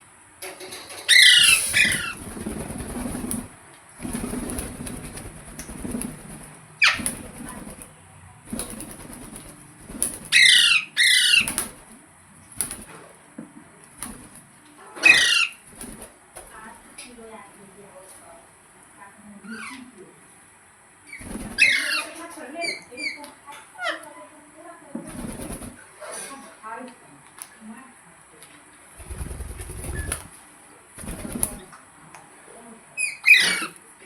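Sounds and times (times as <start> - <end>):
parrot screeching: 1.1 - 2.2, 10.3 - 11.6, 15.0 - 15.6, 21.6 - 23.2, 33.0 - 33.8
rustling: 29.0 - 30.4.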